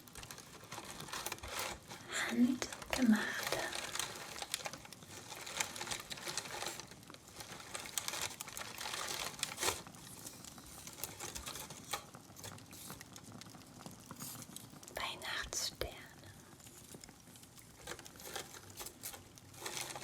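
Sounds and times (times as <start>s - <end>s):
paper rustling and crinkling: 0.0s - 14.8s, 16.6s - 20.0s.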